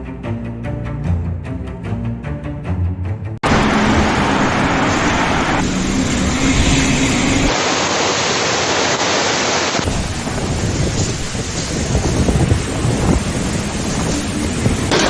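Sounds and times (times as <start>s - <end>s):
heavy rain: 3.4s - 15.0s
wind rushing: 3.4s - 15.0s.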